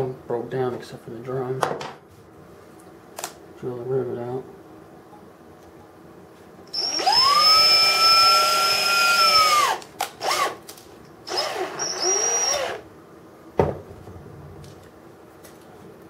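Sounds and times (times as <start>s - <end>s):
electric drill whining: 6.7s - 10.6s, 11.3s - 12.8s.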